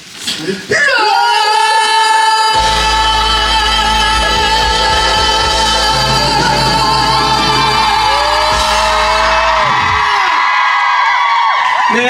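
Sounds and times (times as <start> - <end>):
person singing a long high note: 1.0 - 10.3
bass-heavy musical accompaniment: 2.6 - 10.2.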